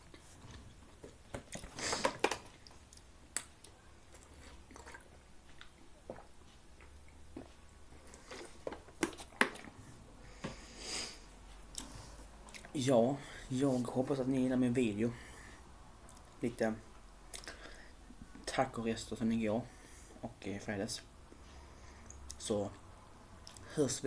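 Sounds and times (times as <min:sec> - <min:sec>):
chewing and mouth noises: 0:02.5 - 0:09.8, 0:11.7 - 0:12.8.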